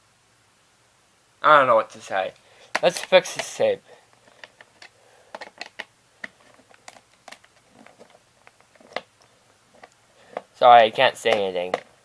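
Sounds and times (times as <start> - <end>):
plastic cassette clicking and tapping: 2.7 - 3.5, 4.2 - 9.1.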